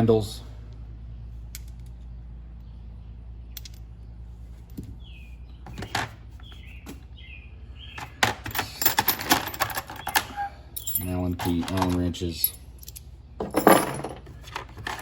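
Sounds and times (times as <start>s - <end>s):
steady low hum: 0.0s - 15.0s
metal hand tools clinking: 8.5s - 14.2s.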